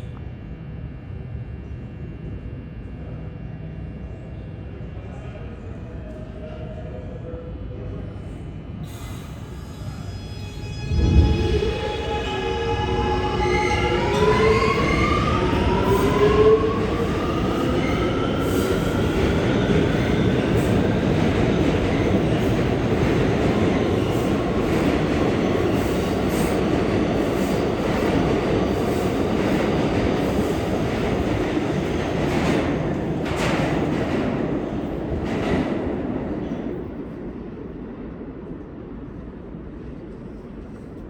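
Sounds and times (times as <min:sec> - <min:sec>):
subway train motor whine: 0:00.0 - 0:35.3
steel wheels rumbling on rails: 0:10.6 - 0:36.6.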